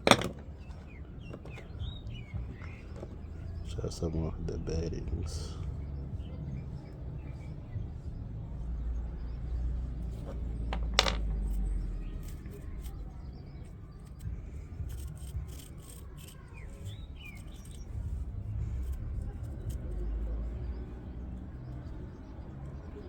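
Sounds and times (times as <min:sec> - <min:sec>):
bearings clicking and rubbing: 0:00.0 - 0:03.4, 0:10.1 - 0:11.6, 0:14.8 - 0:20.2.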